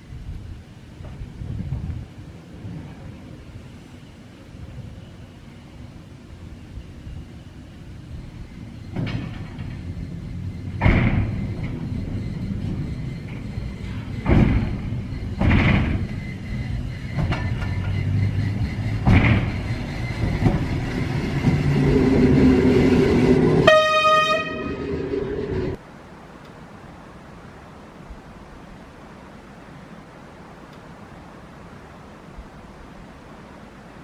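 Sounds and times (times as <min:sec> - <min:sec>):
train wheels knocking on rail joints: 0:08.9 - 0:23.0
train horn blast: 0:23.4 - 0:25.0.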